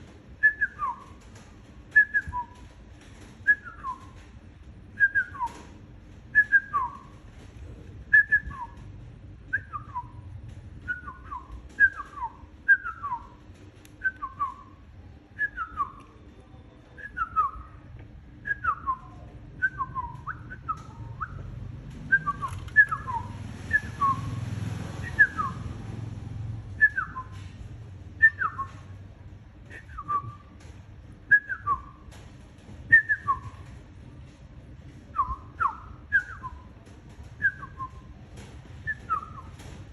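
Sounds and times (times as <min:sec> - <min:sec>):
rustling: 0:00.0 - 0:14.8.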